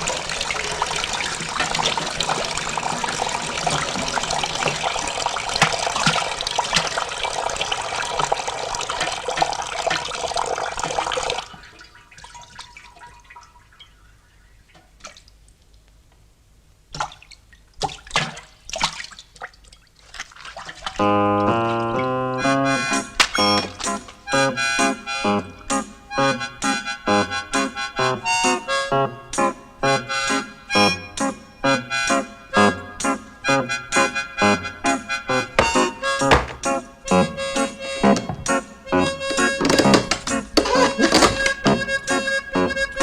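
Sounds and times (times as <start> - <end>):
heavy rain pouring: 0.0 - 10.4
sharp knocks: 35.6 - 36.7.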